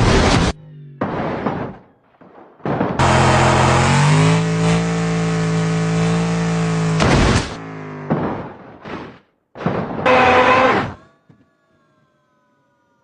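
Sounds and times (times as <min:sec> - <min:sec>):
engine revving hard: 0:03.0 - 0:08.1, 0:10.1 - 0:10.8.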